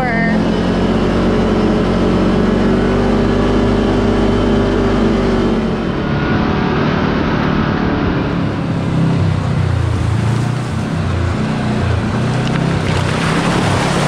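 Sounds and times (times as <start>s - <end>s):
road and wind noise: 0.0s - 14.0s
utility vehicle engine running: 0.0s - 14.0s.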